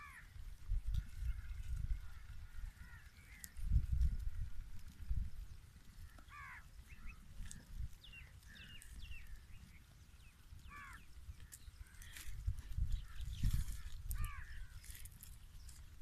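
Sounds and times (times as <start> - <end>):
crows cawing: 0.0 - 0.4, 2.1 - 3.5, 6.1 - 7.2, 10.6 - 12.4, 13.0 - 15.0
low rumble on microphone: 0.0 - 16.0.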